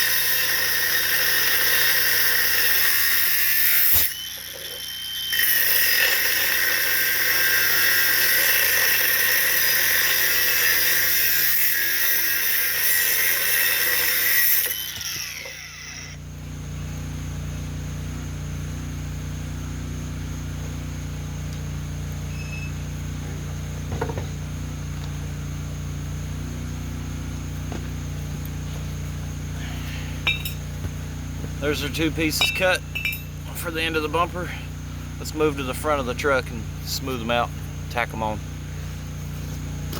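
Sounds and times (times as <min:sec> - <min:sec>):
power tool cutting steel: 0:00.0 - 0:16.2, 0:31.6 - 0:38.3
steady low hum: 0:13.4 - 0:39.9.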